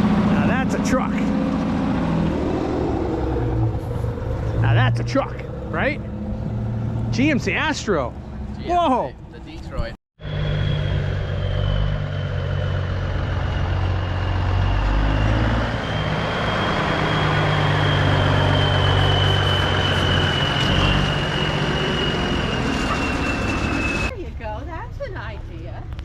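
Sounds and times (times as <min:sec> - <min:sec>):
diesel truck engine running: 0:00.0 - 0:09.5, 0:10.2 - 0:25.9
high-pitched whine: 0:10.2 - 0:24.1.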